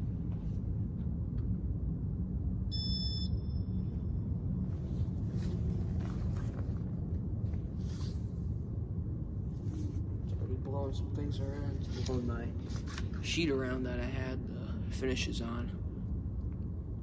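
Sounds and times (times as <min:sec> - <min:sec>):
ceiling fan low rumble: 0:00.0 - 0:17.0
short high electronic beep: 0:02.7 - 0:03.8
faint rustles: 0:04.7 - 0:08.7, 0:09.4 - 0:13.4.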